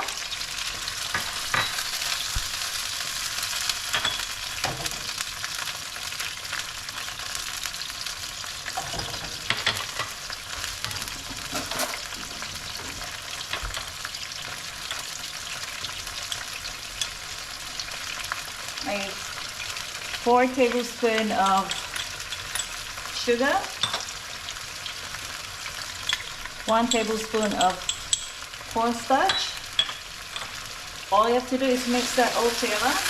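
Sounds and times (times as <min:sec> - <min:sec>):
vegetables sizzling in a hot pan: 0:00.0 - 0:33.0
cooking utensil knocking and scraping: 0:08.8 - 0:10.2.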